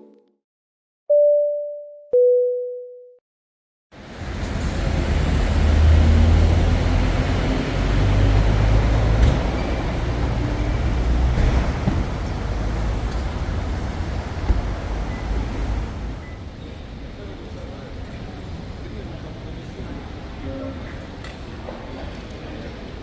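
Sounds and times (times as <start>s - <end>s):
vehicle low rumble: 4.0s - 17.1s.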